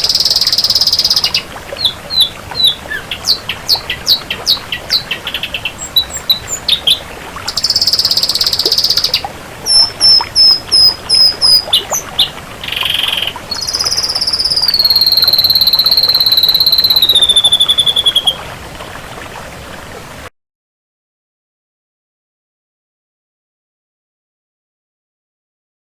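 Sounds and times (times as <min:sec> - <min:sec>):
bird singing varied song: 0:00.0 - 0:18.4.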